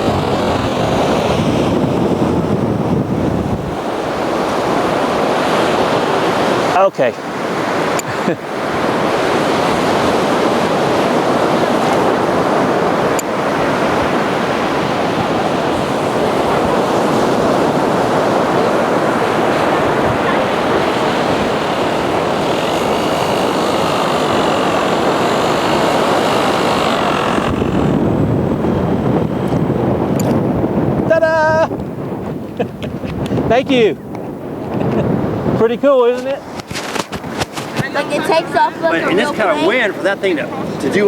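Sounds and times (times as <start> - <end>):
model airplane electric motor whine: 0.0 - 30.7
beach surf: 0.0 - 41.0
wind on microphone: 0.0 - 41.0.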